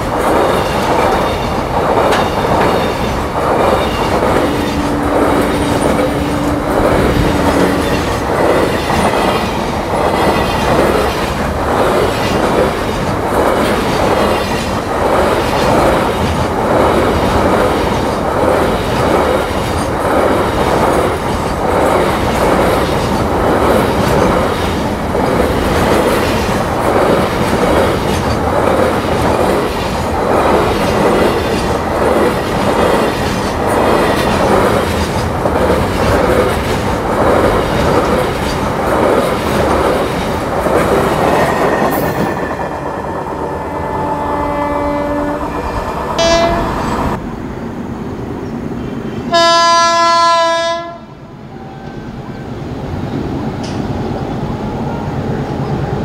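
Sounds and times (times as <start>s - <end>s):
clickety-clack over rail joints: 0.0s - 42.8s, 53.5s - 54.0s
freight train rumbling past: 0.0s - 56.0s.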